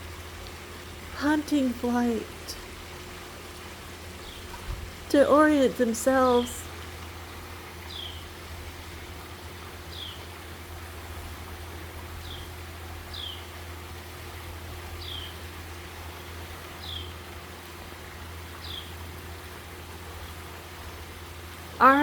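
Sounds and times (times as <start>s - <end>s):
small bird calling: 7.9s - 8.3s, 15.0s - 15.4s.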